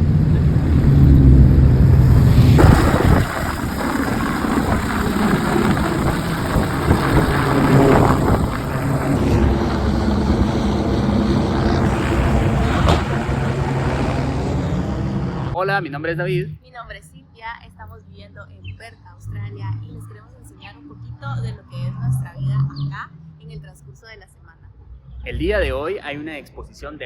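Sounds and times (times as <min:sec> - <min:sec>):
car engines running: 0:00.0 - 0:15.6.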